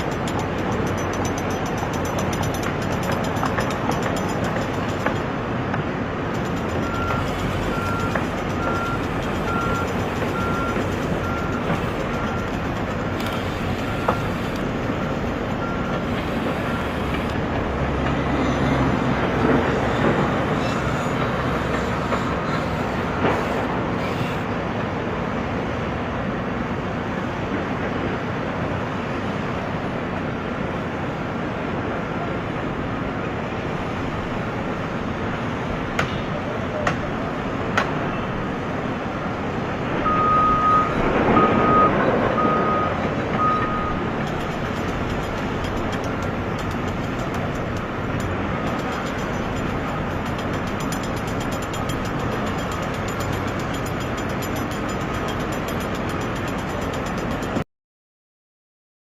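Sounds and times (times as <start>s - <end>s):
reversing beeper: 6.8s - 12.5s, 40.1s - 44.0s.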